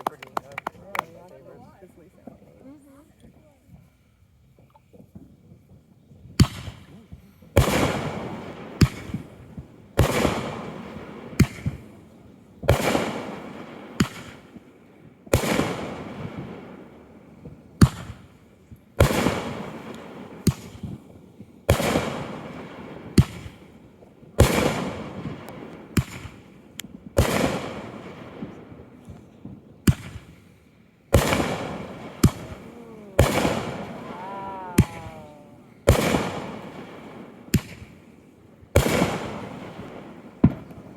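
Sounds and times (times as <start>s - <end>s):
fireworks bangs: 4.5s - 40.9s
falling firework whistles: 31.2s - 36.9s.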